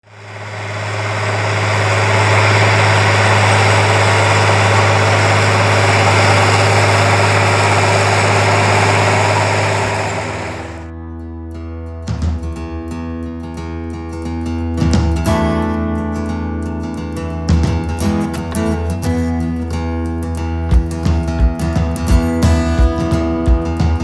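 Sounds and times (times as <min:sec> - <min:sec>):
engine running with low hum: 0:00.0 - 0:10.9.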